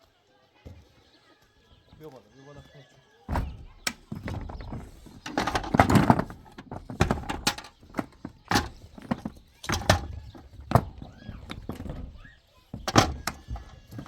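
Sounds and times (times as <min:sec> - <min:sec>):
knocks and clattering thumps: 0:03.3 - 0:14.0.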